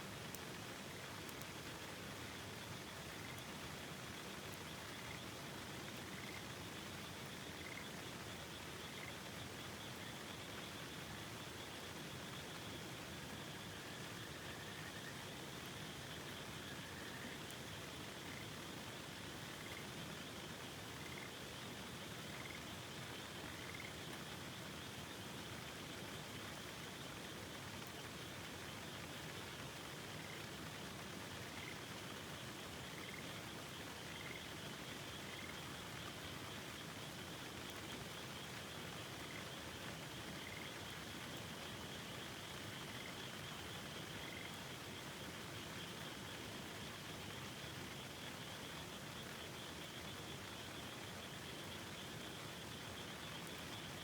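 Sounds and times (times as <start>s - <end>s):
frogs calling: 34.1s - 36.1s, 44.2s - 44.6s.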